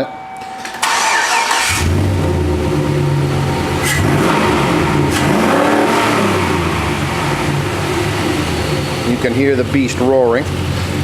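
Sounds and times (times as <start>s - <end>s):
engine starter cranking: 0.6s - 2.0s
engine revving: 0.8s - 11.0s.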